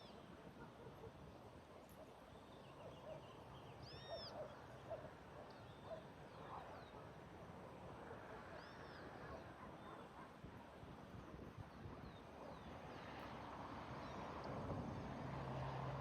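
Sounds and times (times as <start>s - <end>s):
bird chirps and calls: 3.8s - 4.4s.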